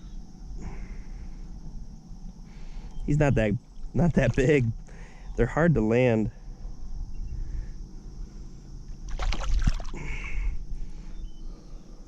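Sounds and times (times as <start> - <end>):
steady low rumble: 0.0 - 12.0
water splashing: 3.8 - 4.7, 9.1 - 10.0.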